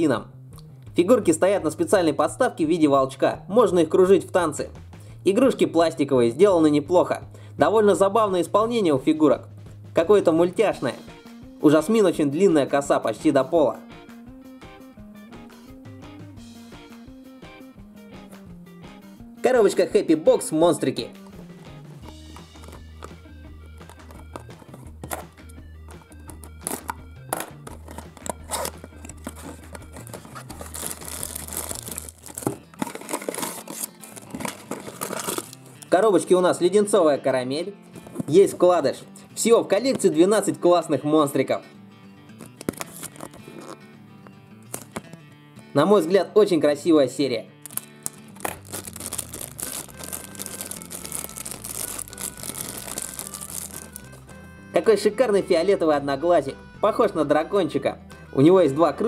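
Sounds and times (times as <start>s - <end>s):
background music: 0.0s - 59.0s
cellophane wrapper crinkling: 22.1s - 25.3s, 25.9s - 35.9s, 42.4s - 43.8s, 44.7s - 45.2s, 47.6s - 54.3s
cardboard box tearing: 26.6s - 35.8s, 42.4s - 43.8s, 47.7s - 54.2s.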